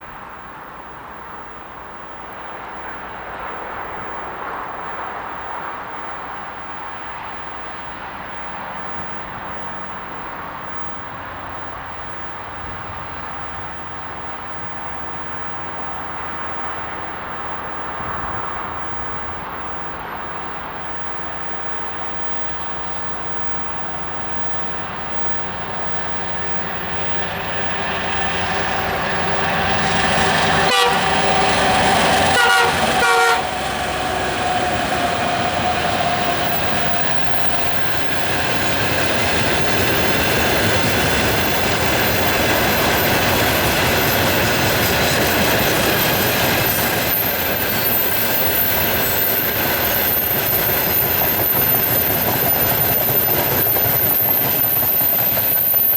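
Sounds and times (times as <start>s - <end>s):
train wagons rumbling on rails: 0.4s - 55.9s
train horn: 29.4s - 34.7s.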